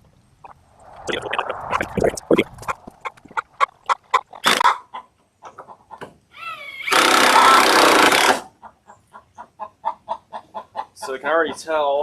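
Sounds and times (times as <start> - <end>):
chickens clucking: 1.2 - 6.2, 8.4 - 12.0.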